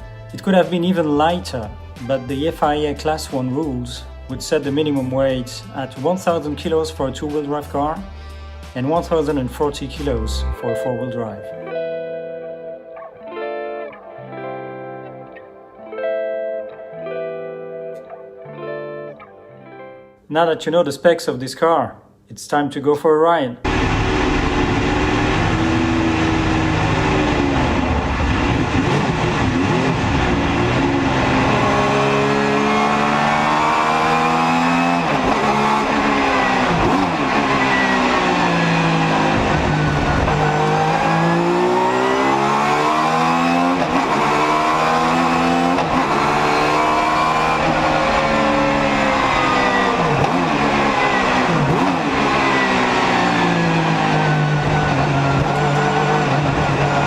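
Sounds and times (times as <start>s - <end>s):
race car engine revving: 23.6s - 57.0s.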